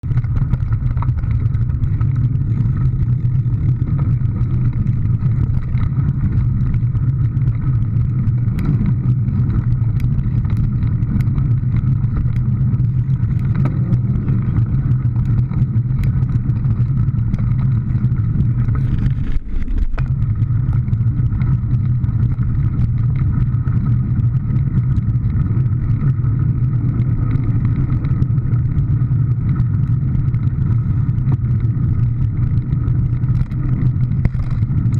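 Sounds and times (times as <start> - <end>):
vehicle engine and road noise: 0.0 - 34.9.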